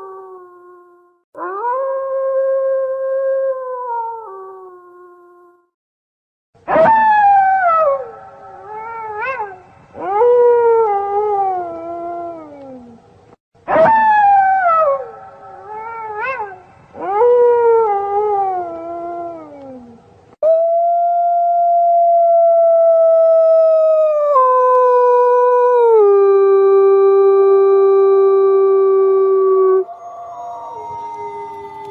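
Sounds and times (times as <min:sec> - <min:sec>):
wolves howling: 0:29.3 - 0:31.9.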